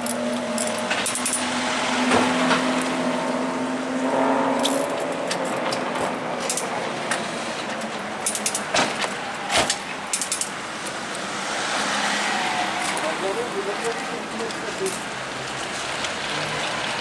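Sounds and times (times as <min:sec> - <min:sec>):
metallic clicks and clinks: 0:00.0 - 0:01.5, 0:06.4 - 0:06.8, 0:08.2 - 0:08.8, 0:10.1 - 0:11.0, 0:14.8 - 0:15.1
steady engine-like tone: 0:00.0 - 0:10.5
rushing vehicle noise: 0:00.0 - 0:17.0.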